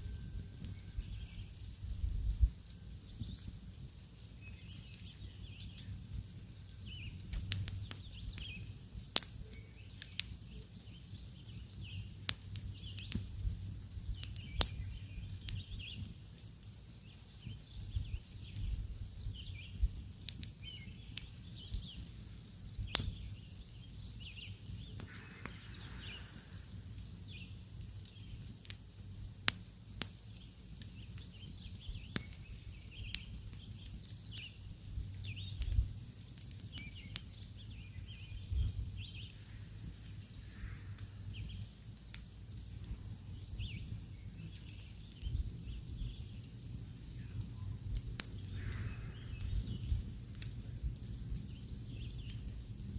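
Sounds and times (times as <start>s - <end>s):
campfire crackling and popping: 0.0s - 52.9s
small birds chirping: 0.0s - 52.9s
low steady rumble: 11.1s - 30.0s, 31.4s - 52.9s.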